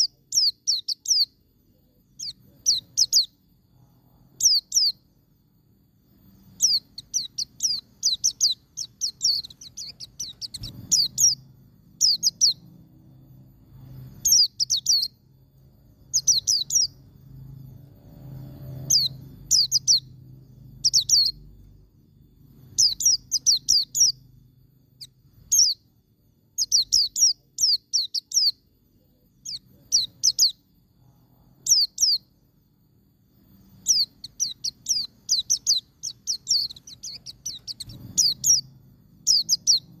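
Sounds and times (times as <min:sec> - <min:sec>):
bird singing rapid high notes: 0:02.1 - 0:03.5, 0:04.4 - 0:05.1, 0:06.3 - 0:15.3, 0:15.9 - 0:21.6, 0:22.4 - 0:24.4, 0:26.5 - 0:28.7, 0:33.6 - 0:40.0.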